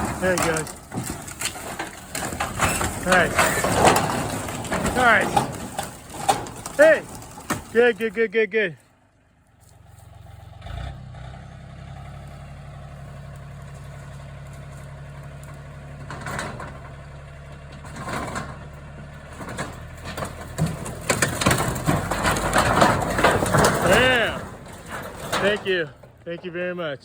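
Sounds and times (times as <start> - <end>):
clattering knocks: 0.0 - 8.2, 13.6 - 26.6
backhoe engine running: 0.0 - 27.0.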